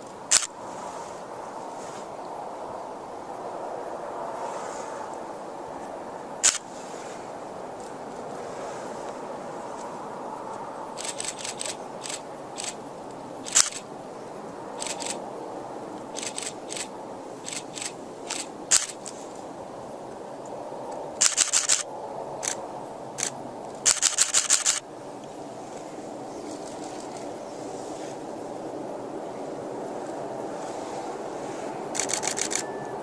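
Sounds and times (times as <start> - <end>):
camera shutters clicking: 0.3 - 0.5, 6.4 - 6.6, 11.0 - 12.8, 13.4 - 13.8, 14.8 - 15.2, 16.2 - 16.9, 17.5 - 19.2, 21.2 - 22.6, 23.2 - 24.8, 31.9 - 32.7.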